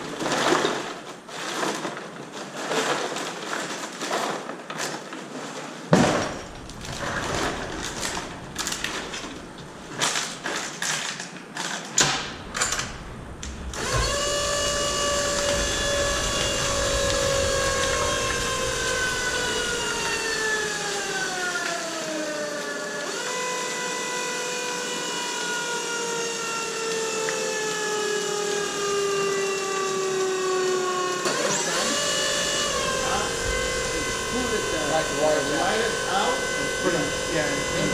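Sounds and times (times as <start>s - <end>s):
sharp knocks and crackles: 5.9s - 21.3s, 32.0s - 37.9s
electric motor whining: 6.0s - 10.6s, 12.0s - 24.5s, 27.8s - 37.9s.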